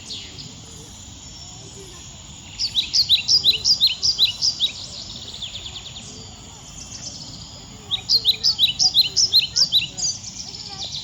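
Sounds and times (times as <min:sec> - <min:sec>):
outdoor background noise: 0:00.0 - 0:11.0
bird chirping rapidly: 0:02.5 - 0:04.9, 0:07.9 - 0:10.8.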